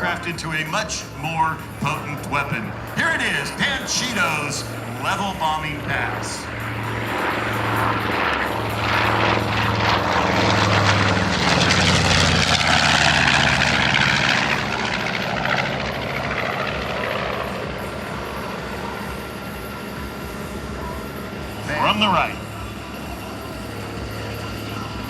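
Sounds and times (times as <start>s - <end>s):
propeller plane flying low: 0.0s - 25.0s.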